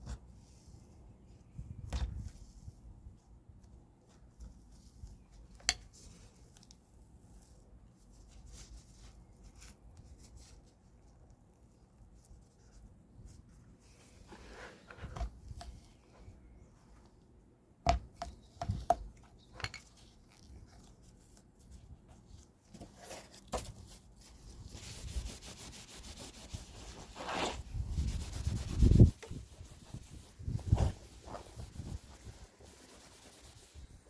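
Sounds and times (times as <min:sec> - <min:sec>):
rubbing or scraping with ticks: 0:24.7 - 0:34.0.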